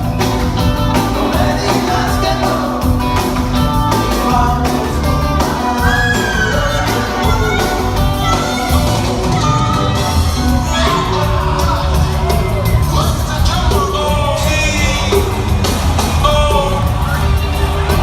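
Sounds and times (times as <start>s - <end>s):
loud rock music: 0.0s - 18.0s
person singing: 0.8s - 15.4s
shouted yells: 5.7s - 9.6s.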